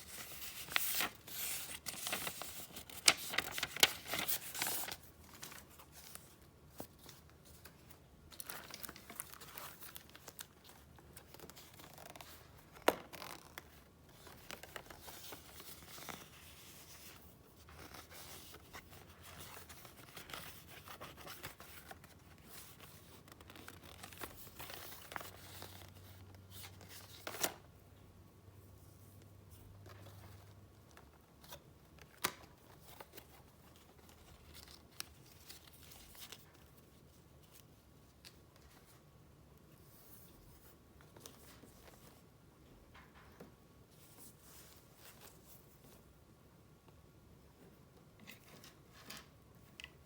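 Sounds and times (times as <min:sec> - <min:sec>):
paper rustling and crinkling: 0:00.0 - 0:27.6, 0:29.6 - 0:39.0.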